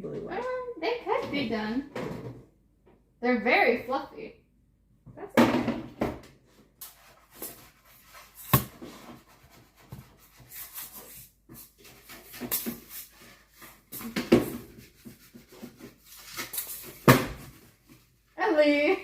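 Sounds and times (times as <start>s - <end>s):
rubbing and scraping: 6.5s - 18.4s.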